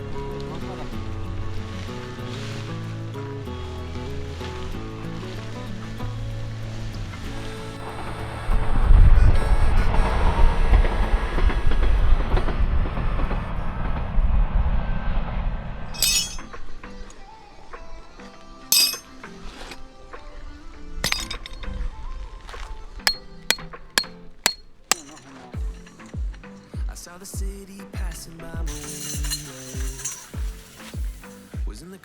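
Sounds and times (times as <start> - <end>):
metallic clinks and knocks: 16.0 - 16.5, 18.8 - 19.0, 21.1 - 21.6, 23.1 - 26.4, 28.7 - 31.1
background music: 16.4 - 32.0.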